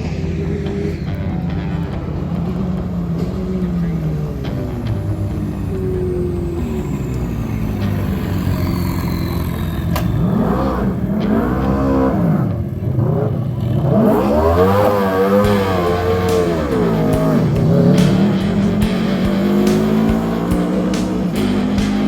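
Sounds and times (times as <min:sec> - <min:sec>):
car engine revving hard: 0:02.0 - 0:22.0.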